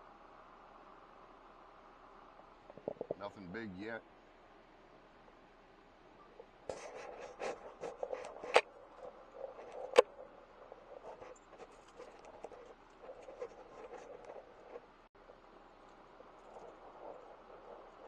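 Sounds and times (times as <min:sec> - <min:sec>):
scraping and rustling: 0:06.4 - 0:14.9.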